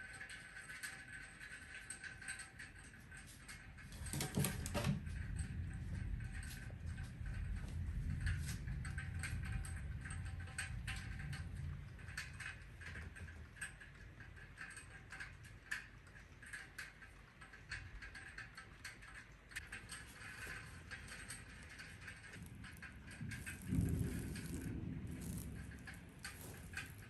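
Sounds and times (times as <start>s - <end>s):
heavy rain on hard surface: 5.0s - 13.0s, 18.1s - 27.0s
low rumble: 5.1s - 12.9s, 20.5s - 27.0s.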